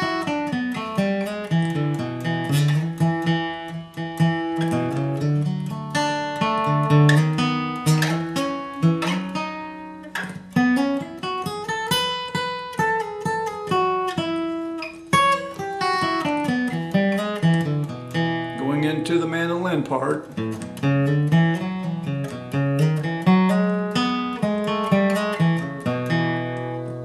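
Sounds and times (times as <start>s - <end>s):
acoustic guitar picking: 0.0s - 27.0s.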